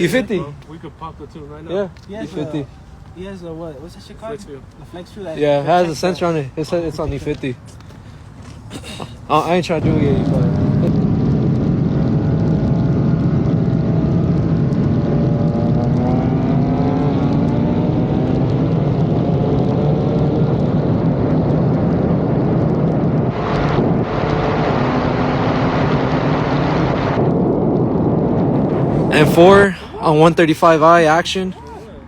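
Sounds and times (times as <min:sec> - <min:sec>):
heavy wind noise: 0:04.2 - 0:32.0
car engines at full throttle: 0:09.2 - 0:30.1.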